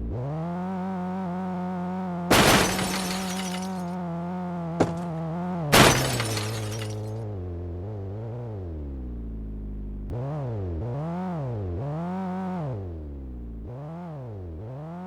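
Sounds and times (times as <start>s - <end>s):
car crash with breaking glass: 2.3s - 3.9s, 4.8s - 5.1s, 5.7s - 7.1s.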